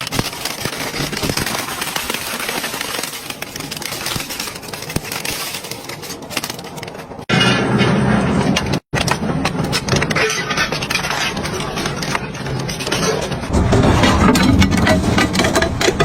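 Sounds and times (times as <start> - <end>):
crushing machine crunching: 0.0 - 16.0.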